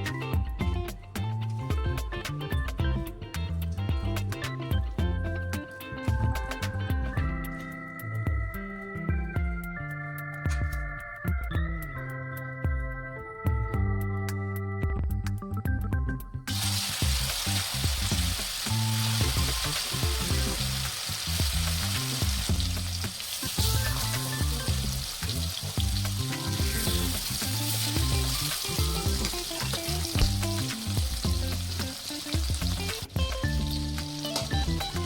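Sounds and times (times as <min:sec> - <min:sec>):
chicken sizzling in hot oil: 0:16.5 - 0:35.0.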